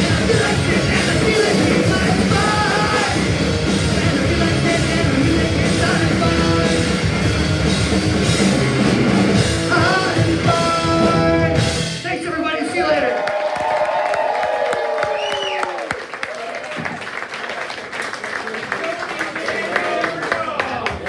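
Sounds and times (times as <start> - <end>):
person singing: 0.0 - 7.2, 9.4 - 11.8
punk rock band playing live: 0.0 - 12.2.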